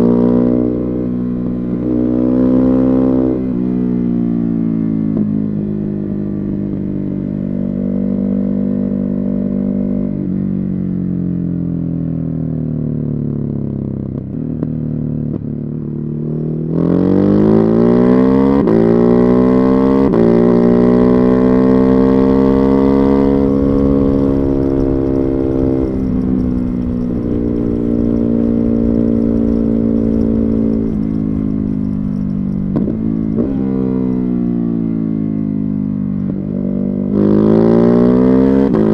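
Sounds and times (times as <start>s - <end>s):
motorcycle engine revving: 15.8s - 38.9s
motorcycle throttle blips: 17.6s - 38.9s.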